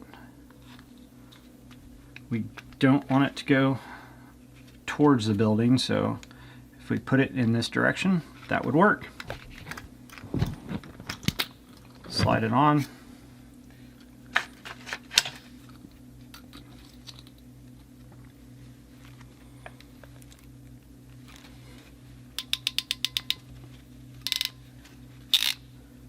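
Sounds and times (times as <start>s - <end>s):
steady low hum: 0.0s - 26.0s
crimp tool ratcheting: 22.4s - 23.4s, 24.2s - 24.6s, 25.3s - 25.6s
fittings and tubing clicking: 22.4s - 23.5s, 25.3s - 25.6s.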